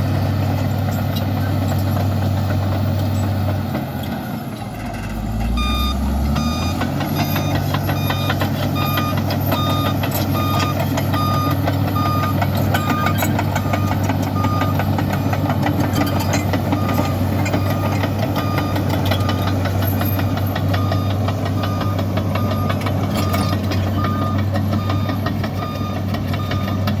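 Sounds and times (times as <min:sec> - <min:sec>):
bulldozer diesel engine running: 0:00.0 - 0:27.0
reversing alarm beeping: 0:05.5 - 0:27.0.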